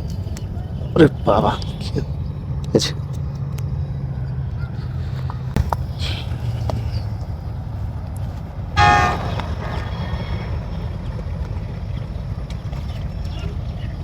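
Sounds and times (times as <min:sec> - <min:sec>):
short loud pitched call: 0:08.8 - 0:10.5
boat engine drone: 0:08.8 - 0:14.0.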